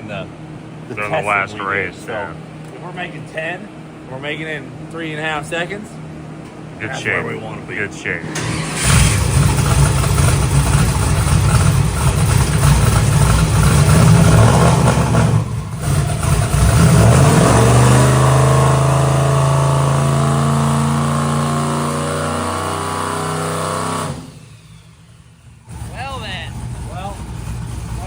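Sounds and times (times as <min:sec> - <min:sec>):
truck engine running hard: 0:08.3 - 0:28.0.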